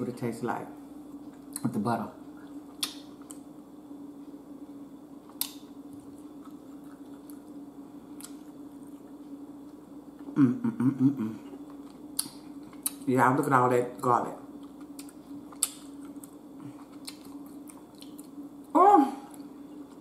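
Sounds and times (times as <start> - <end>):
steady low hum: 0.0 - 20.0
voice: 1.6 - 2.2, 13.1 - 14.4, 18.8 - 19.3
wet mouth clicks: 2.8 - 3.4, 11.8 - 13.0
close chewing: 14.6 - 18.4.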